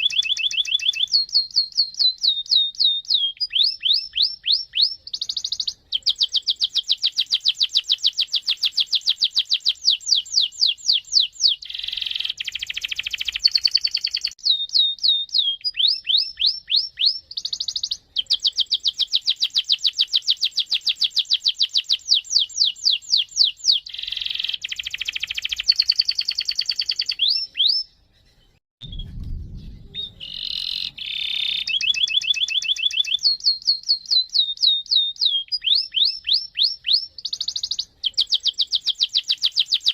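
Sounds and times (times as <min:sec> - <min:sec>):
canary singing: 0:00.0 - 0:28.6, 0:29.6 - 0:39.9
low thump: 0:28.8 - 0:30.4.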